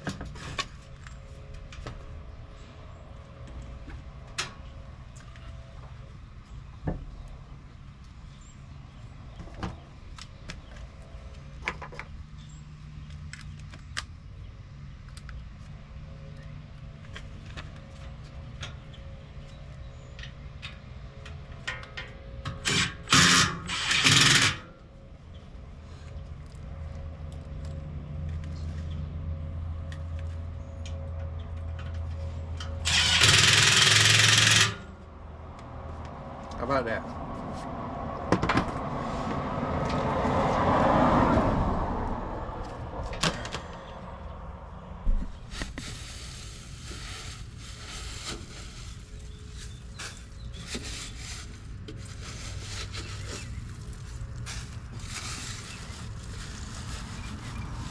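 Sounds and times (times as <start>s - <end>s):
cordless power tool bursts: 22.6s - 24.7s, 32.8s - 34.9s.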